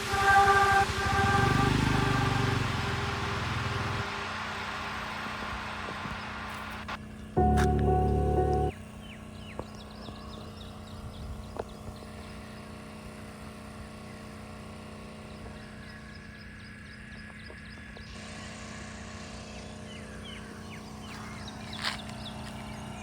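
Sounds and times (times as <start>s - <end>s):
steady low hum: 7.4s - 8.8s.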